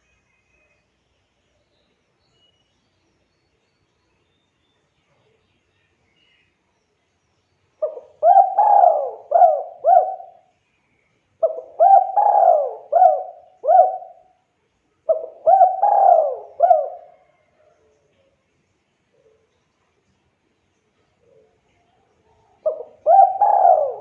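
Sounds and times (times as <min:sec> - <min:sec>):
dove cooing: 0:07.8 - 0:10.5, 0:11.4 - 0:14.3, 0:15.1 - 0:17.5, 0:22.6 - 0:24.0.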